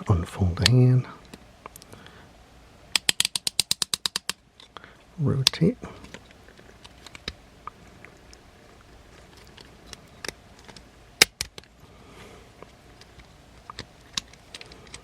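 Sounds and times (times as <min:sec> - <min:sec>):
plastic toy parts clicking: 0:02.9 - 0:04.7, 0:09.4 - 0:11.7, 0:13.0 - 0:15.0.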